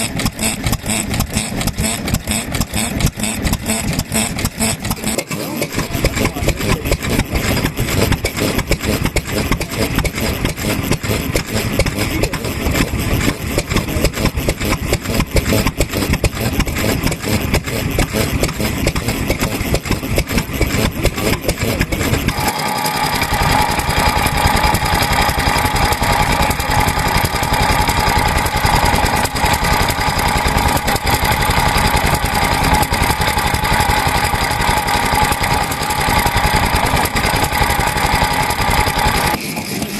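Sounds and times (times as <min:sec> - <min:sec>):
stationary engines chugging: 0:00.0 - 0:39.9.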